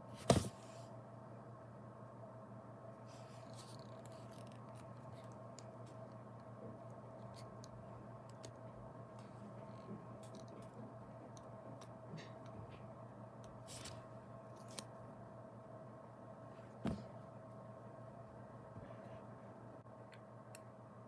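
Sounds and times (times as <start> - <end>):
steady electrical hum: 0.0 - 21.0
small clicks and handling noises: 3.4 - 12.8, 13.4 - 15.0.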